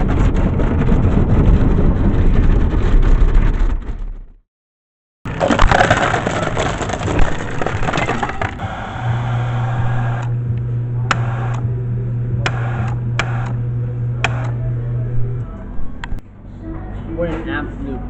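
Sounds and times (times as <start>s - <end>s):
crunching splintering crash: 5.3s - 8.6s
low hum: 5.4s - 17.2s
sharp clicks: 11.1s - 11.7s.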